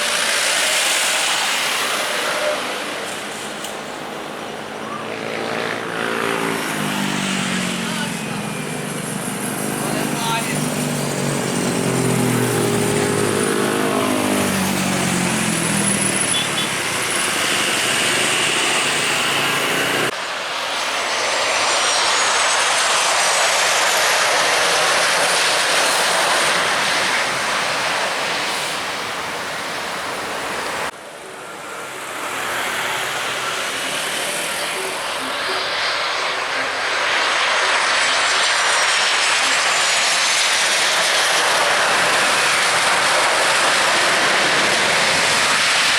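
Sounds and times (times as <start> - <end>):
airliner engines passing: 0.0 - 45.9.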